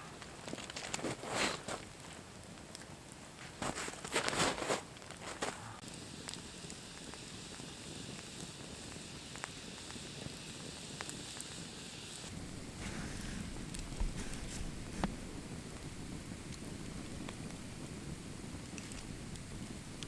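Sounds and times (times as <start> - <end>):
campfire hissing: 0.0 - 20.0
campfire popping: 0.0 - 20.0
scuffing bursts: 3.5 - 5.8.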